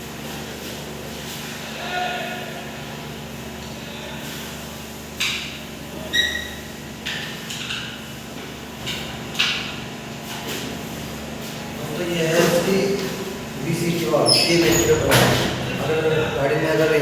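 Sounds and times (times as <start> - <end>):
steady low hum: 8.3 - 17.0.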